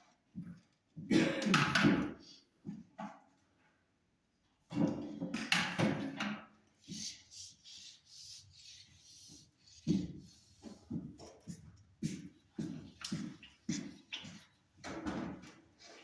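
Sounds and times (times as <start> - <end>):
rubbing and scraping on wood: 6.8 - 14.6.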